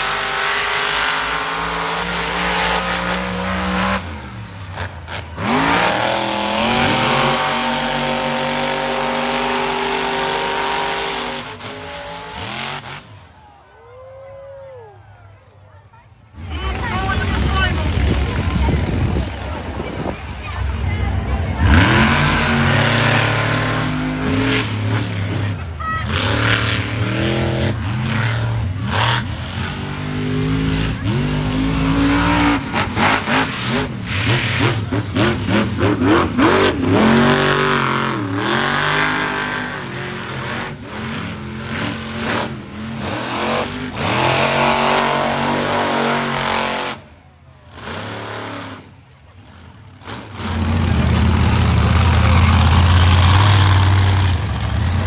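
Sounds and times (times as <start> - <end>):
truck engine revving hard: 0.0 - 13.4, 16.2 - 55.0.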